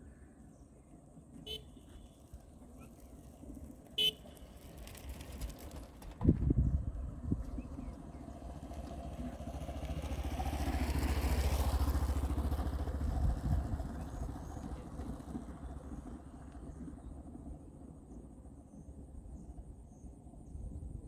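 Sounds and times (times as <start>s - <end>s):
engine pulsing fast: 4.1s - 6.1s, 7.2s - 17.6s.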